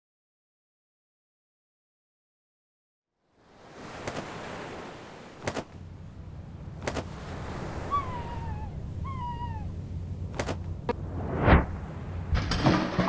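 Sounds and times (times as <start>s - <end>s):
steady hiss and low hum: 5.7s - 12.4s
seagull calling: 6.9s - 11.0s.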